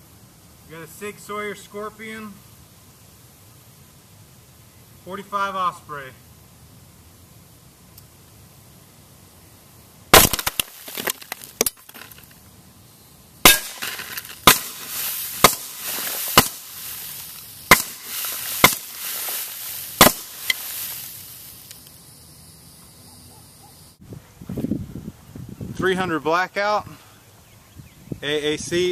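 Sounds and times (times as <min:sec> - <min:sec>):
suppressed pistol shots: 0:10.2 - 0:10.8, 0:20.0 - 0:20.6.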